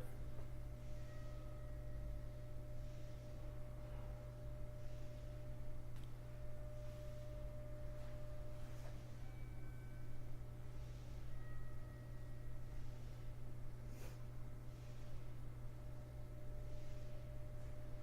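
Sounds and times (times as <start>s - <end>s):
thin steady tone: 0.0s - 18.0s
train electrical hum: 0.0s - 18.0s.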